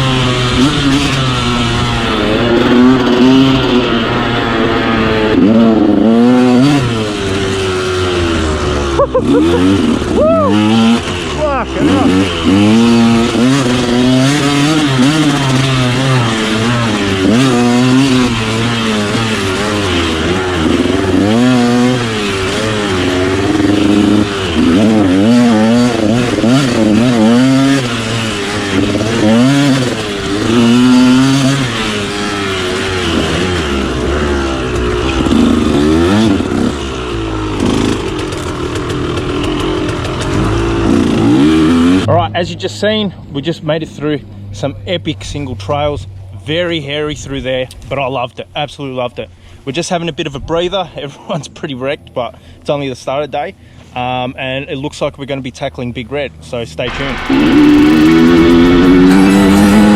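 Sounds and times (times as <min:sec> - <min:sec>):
dirt bike engine revving: 0:00.0 - 0:43.0, 0:56.8 - 0:59.9.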